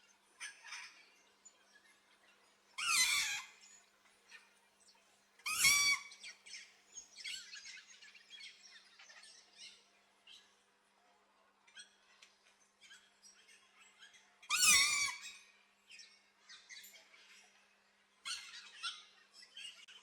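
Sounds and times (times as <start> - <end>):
small birds chirping: 0.0 - 10.9, 11.7 - 20.0
parrot squawking: 2.8 - 3.5, 5.5 - 6.0.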